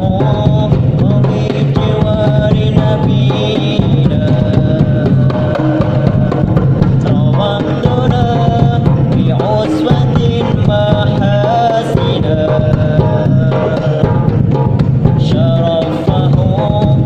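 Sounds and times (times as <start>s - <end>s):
deep bass drum: 0.0s - 17.0s
hand drums beating: 0.0s - 17.0s.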